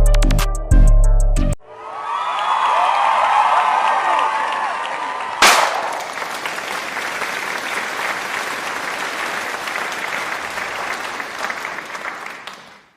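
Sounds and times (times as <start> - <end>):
crowd applauding: 1.8 - 12.9
firework bang: 5.4 - 6.5.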